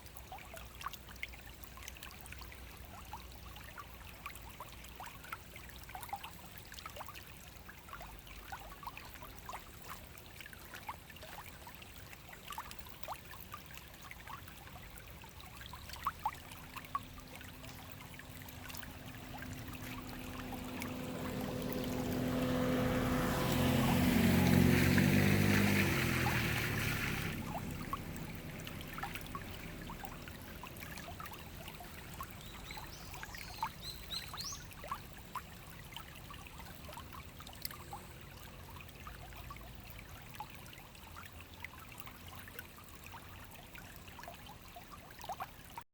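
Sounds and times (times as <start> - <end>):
stream trickling: 0.0 - 45.9
passing vehicle engine: 18.2 - 30.8.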